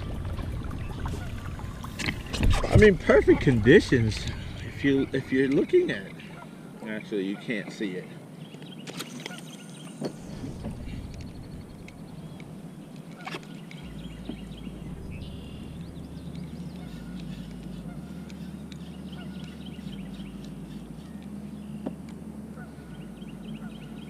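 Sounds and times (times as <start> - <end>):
geese honking: 0.2 - 2.2, 2.8 - 7.7, 13.1 - 24.0.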